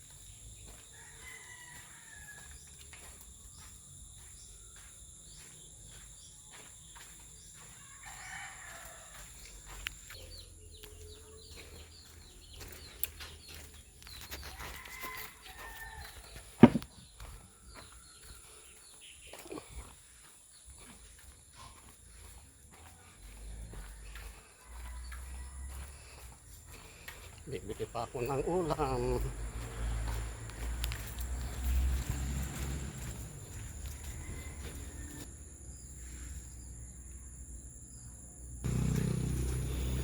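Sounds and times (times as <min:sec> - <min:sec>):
footsteps patter: 0:00.0 - 0:35.3
rooster crowing: 0:00.6 - 0:03.0, 0:07.6 - 0:09.8, 0:14.4 - 0:16.8, 0:23.3 - 0:26.4, 0:28.2 - 0:35.3
sharp knock: 0:16.6 - 0:16.9.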